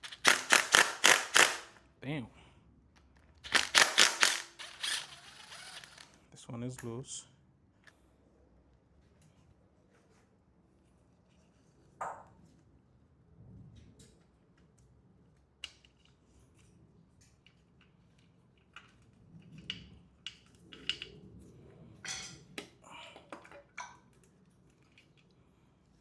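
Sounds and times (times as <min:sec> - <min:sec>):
metallic clicks of hand tools: 0:00.0 - 0:01.7, 0:03.5 - 0:06.1.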